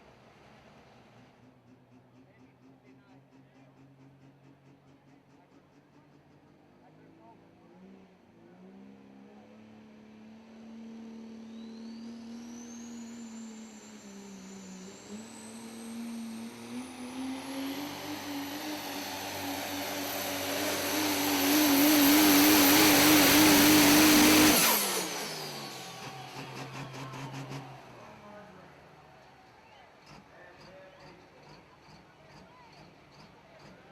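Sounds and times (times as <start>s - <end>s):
diesel truck engine under load: 10.8s - 33.9s
turbocharger whistle: 11.4s - 28.4s.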